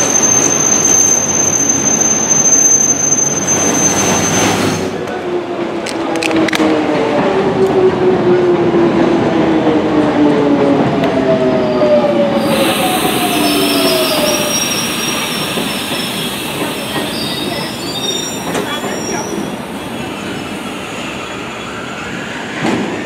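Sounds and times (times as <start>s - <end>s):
high-pitched wheel squeals: 0.0s - 5.0s, 11.6s - 21.9s
rumble of wheels on rail: 0.0s - 23.0s.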